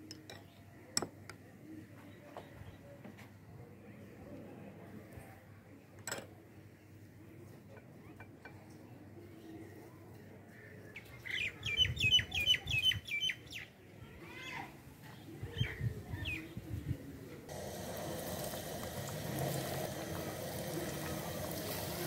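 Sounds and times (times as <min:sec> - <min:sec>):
chicken nugget deep-frying in oil: 0:17.5 - 0:22.0.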